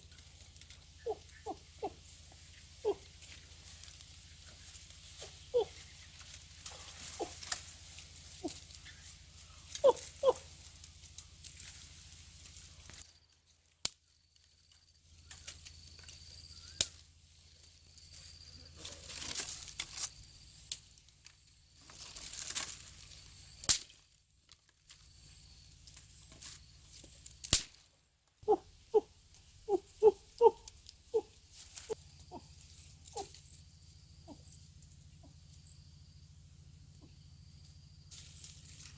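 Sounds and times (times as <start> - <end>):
rustling and crackling: 0.0 - 13.8, 14.4 - 35.7
sharp snaps: 23.6 - 24.0, 27.4 - 27.8.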